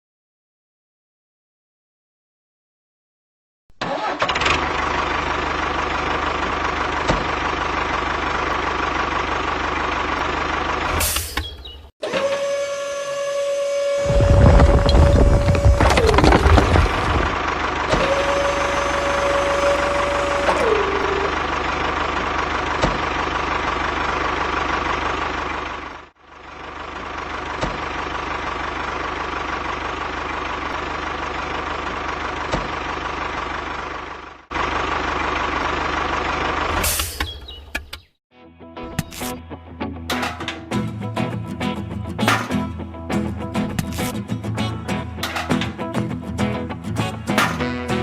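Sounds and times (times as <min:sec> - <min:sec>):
small motor whining: 0:12.0 - 0:21.5
steady tone dipping in pitch: 0:18.2 - 0:21.5.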